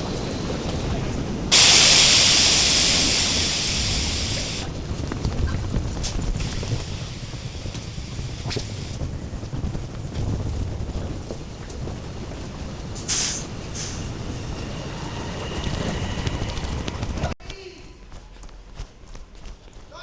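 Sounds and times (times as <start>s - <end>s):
train rumble: 0.0s - 17.4s
air hiss: 1.5s - 4.8s, 13.0s - 16.7s.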